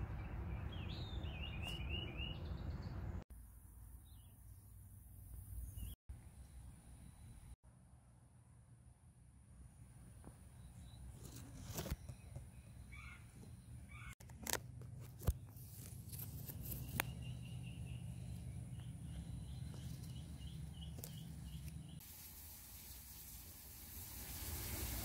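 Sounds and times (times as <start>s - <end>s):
small bird chirping: 10.5s - 14.2s, 15.3s - 22.0s.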